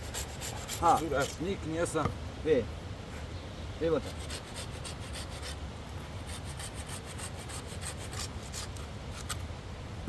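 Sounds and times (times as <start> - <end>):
hand tool rasping wood: 0.0 - 1.4, 6.3 - 9.3.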